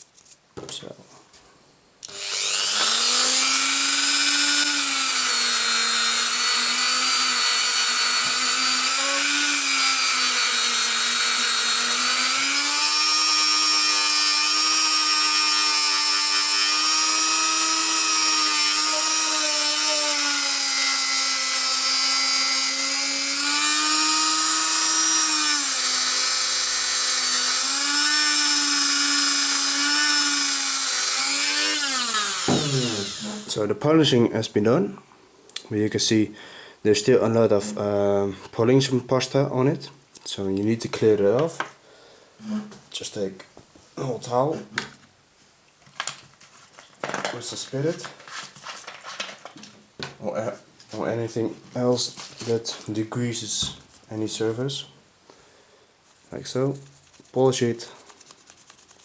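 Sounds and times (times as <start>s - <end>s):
electric polishing tool whining: 2.1s - 33.6s.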